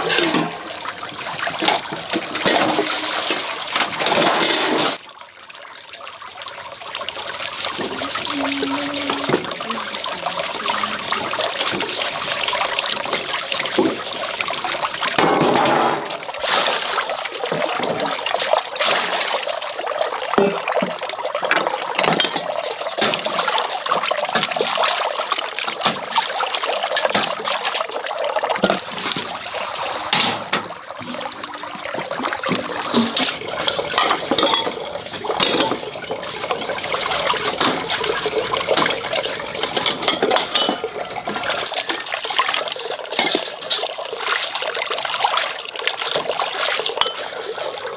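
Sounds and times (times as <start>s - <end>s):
tap water running and splashing: 0.0s - 47.9s
knocks and clinks: 32.5s - 41.6s.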